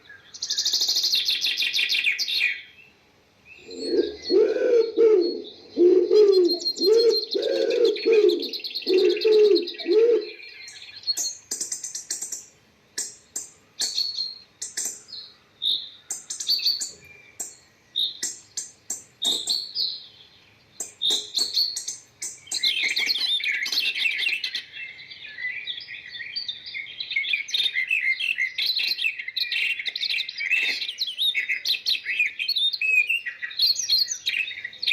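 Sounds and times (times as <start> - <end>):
high bird chirping: 0.0 - 2.9, 3.5 - 34.9
birds twittering chatter: 0.0 - 34.9
low cooing: 3.6 - 10.4.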